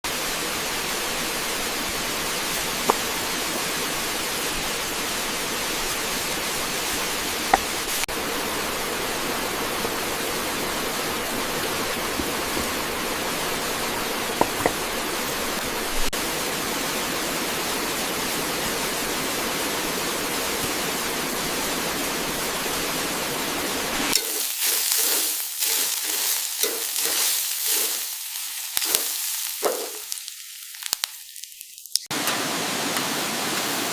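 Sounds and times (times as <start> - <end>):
meat sizzling in a pan: 24.0 - 32.1.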